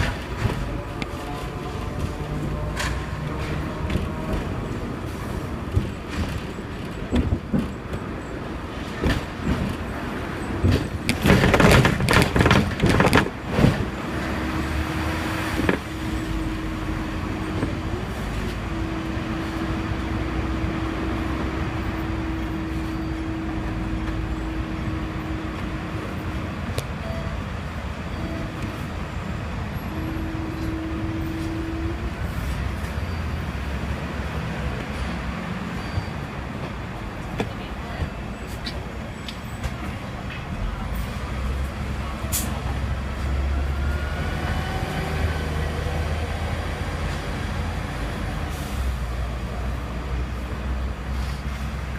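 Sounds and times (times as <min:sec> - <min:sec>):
tram wheels knocking over rails: 0:05.5 - 0:14.0
loud clatter: 0:10.6 - 0:13.9.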